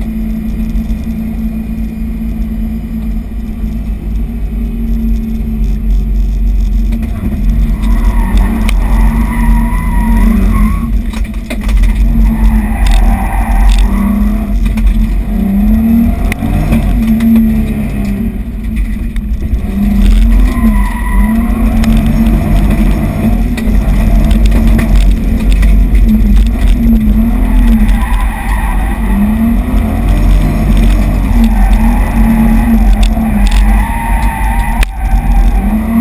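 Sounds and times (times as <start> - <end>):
car engine from inside cabin: 0.0 - 36.0
tires squealing: 7.0 - 18.2, 19.3 - 36.0.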